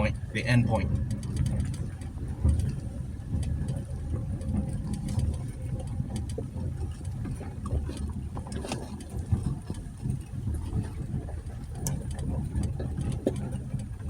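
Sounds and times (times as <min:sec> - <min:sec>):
pickup engine and road rumble: 0:00.0 - 0:14.0
small clicks and knocks: 0:00.9 - 0:09.8.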